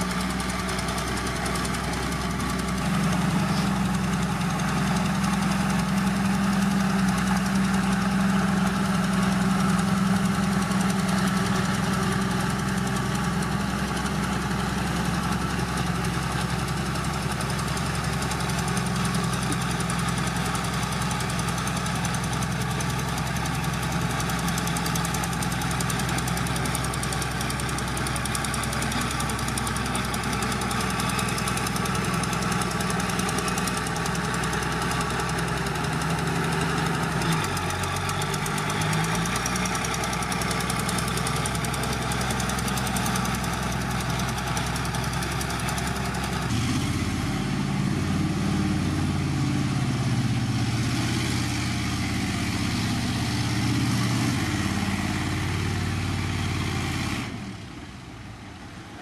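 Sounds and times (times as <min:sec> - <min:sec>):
heavy diesel engine droning: 0:00.0 - 0:59.0.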